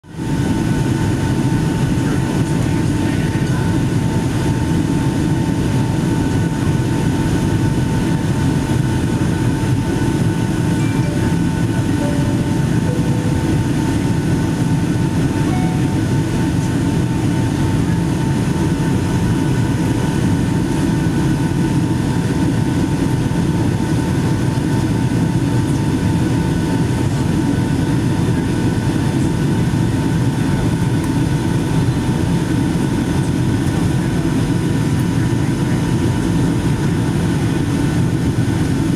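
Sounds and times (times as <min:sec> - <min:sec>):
airliner cabin engine roar: 0:00.0 - 0:38.9
high steady whine: 0:09.7 - 0:22.6.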